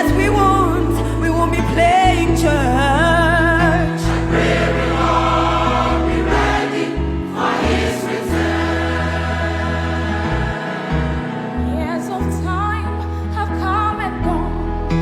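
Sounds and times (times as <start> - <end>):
steady bass accompaniment: 0.0 - 13.0
choir singing gospel: 3.6 - 12.1.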